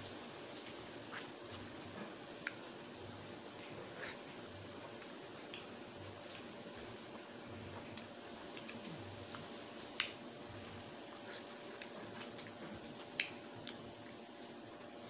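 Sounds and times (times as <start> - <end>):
faint steady hum: 0.0 - 15.0
wet mouth eating sounds: 2.4 - 14.2.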